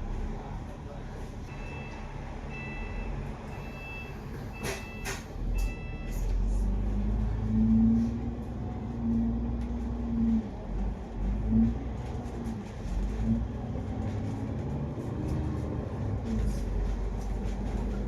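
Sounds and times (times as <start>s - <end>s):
bus engine rumble and whine: 0.0s - 18.0s
warning beeps: 1.5s - 6.2s.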